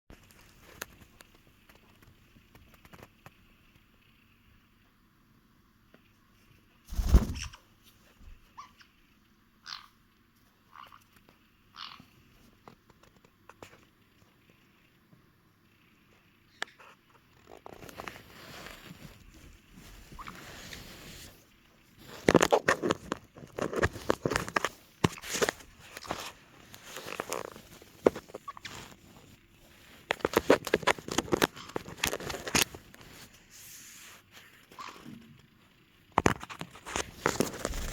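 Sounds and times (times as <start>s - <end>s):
parrots calling raspily: 8.5s - 10.0s, 10.7s - 11.1s, 11.7s - 12.2s, 20.1s - 20.5s, 28.2s - 28.9s, 34.7s - 35.2s
fabric rustling: 18.0s - 22.6s, 36.9s - 37.9s.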